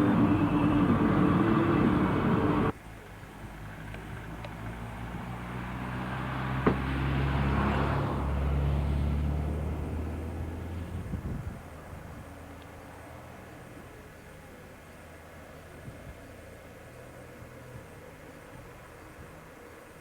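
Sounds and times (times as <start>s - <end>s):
loud busy sound: 0.0s - 2.7s
vehicle engine drone: 0.0s - 15.3s.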